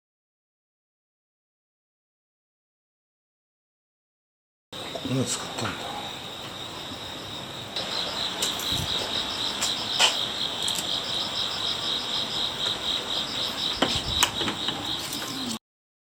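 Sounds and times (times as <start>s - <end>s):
insects chirping in a pulsing trill: 4.8s - 15.6s.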